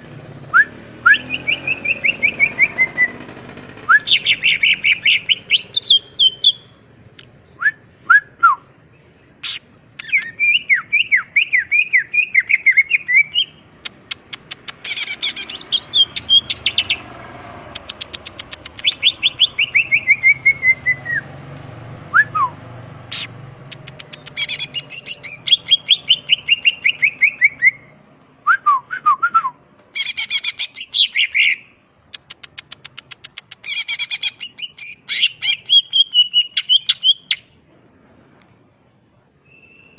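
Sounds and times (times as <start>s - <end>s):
bird singing chattering trills: 1.1s - 6.8s, 8.8s - 21.3s, 23.1s - 27.9s, 30.0s - 37.5s.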